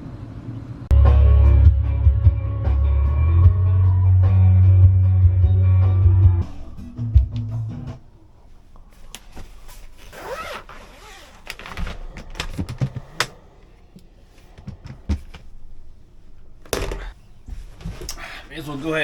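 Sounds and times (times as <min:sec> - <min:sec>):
handling clicks and knocks: 0:11.2 - 0:18.2.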